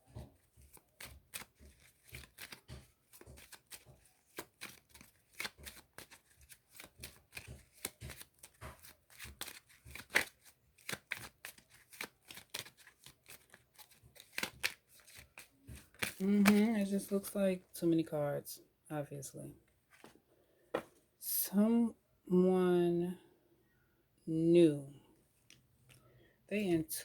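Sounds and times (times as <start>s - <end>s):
cards being shuffled: 0.0s - 17.3s, 19.8s - 21.0s.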